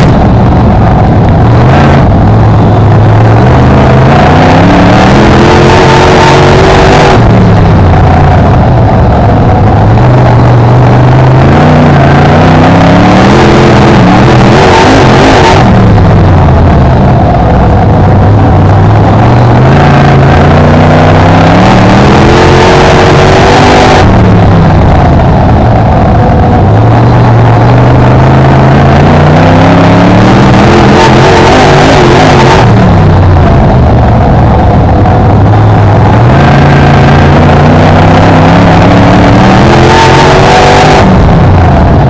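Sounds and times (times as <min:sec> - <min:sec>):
race car engine accelerating: 0:00.0 - 0:42.0.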